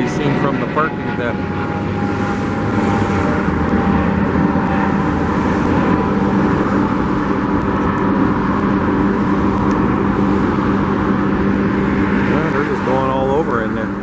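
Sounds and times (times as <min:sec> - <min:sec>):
heavy machinery engines droning: 0:00.0 - 0:14.0.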